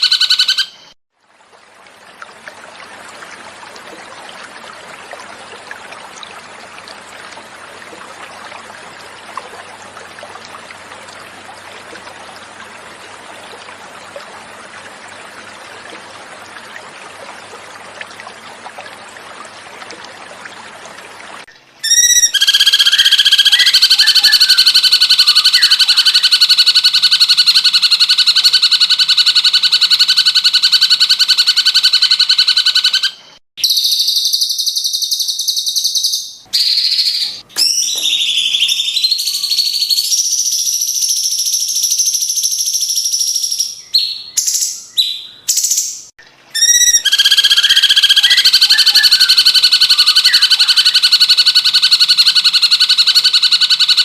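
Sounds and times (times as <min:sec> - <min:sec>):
water trickling: 0:01.2 - 0:28.4.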